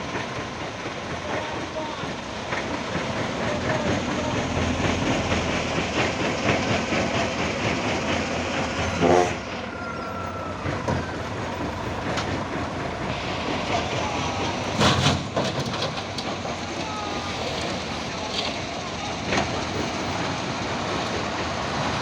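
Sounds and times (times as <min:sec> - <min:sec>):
diesel engine running: 0:00.0 - 0:22.0
metallic rattling and clanking: 0:12.0 - 0:21.6.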